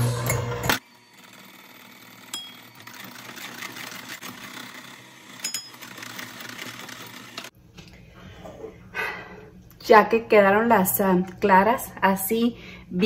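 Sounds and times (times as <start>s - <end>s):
electric hand mixer running: 0.0s - 7.5s.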